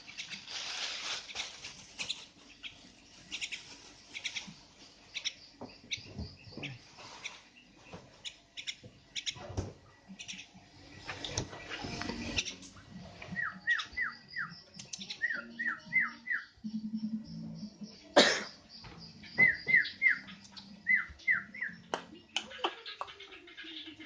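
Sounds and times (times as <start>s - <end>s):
bird chirping sharply: 13.3s - 22.4s.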